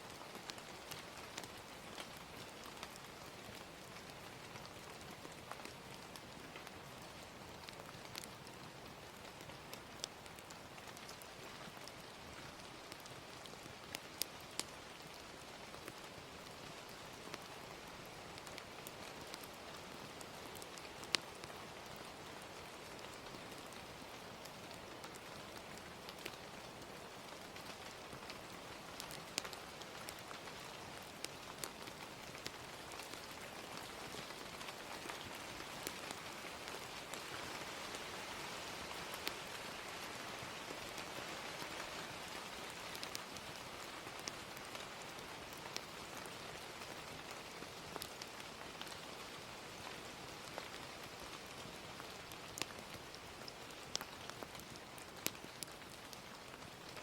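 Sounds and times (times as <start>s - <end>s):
gentle rain: 0.0s - 57.0s
wood fire crackling and popping: 0.1s - 57.0s.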